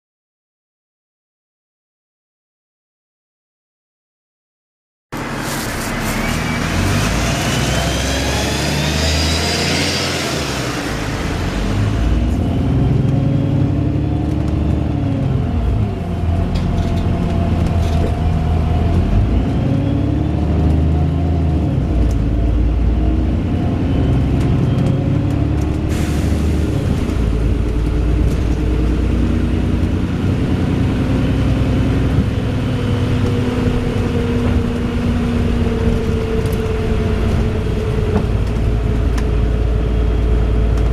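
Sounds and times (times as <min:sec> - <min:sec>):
high rising whine: 0:05.2 - 0:14.0
bus engine and gearbox running: 0:05.2 - 0:40.9.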